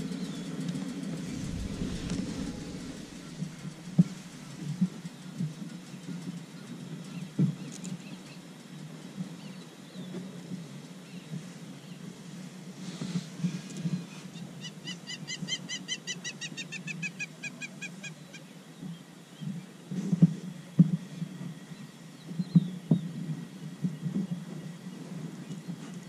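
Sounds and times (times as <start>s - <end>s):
steady low hum: 0.0s - 8.7s.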